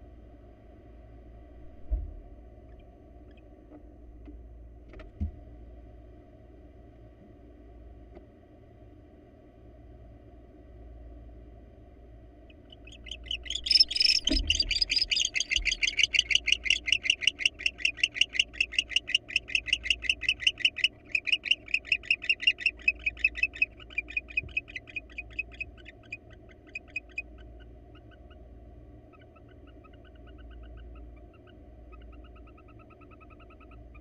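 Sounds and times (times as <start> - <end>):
owl twittering chirps: 12.5 - 28.4, 29.0 - 34.0.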